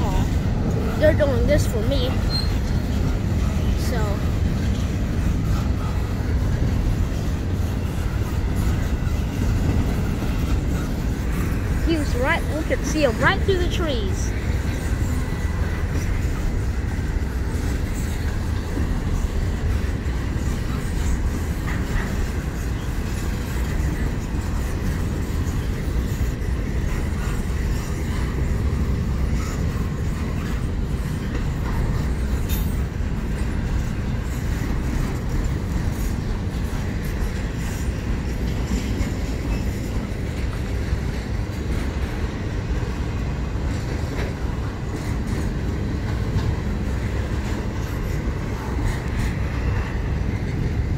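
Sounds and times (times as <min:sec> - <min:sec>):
freight train rumbling: 0:00.0 - 0:50.9.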